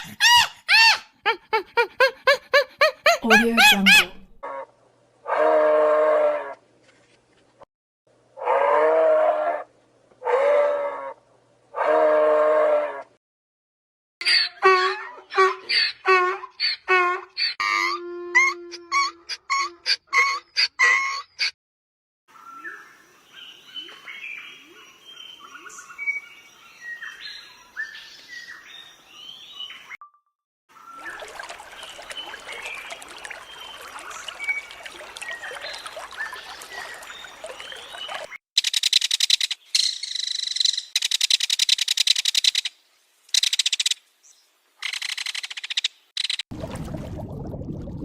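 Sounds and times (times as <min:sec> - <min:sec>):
small birds chirping: 0:30.9 - 0:42.7.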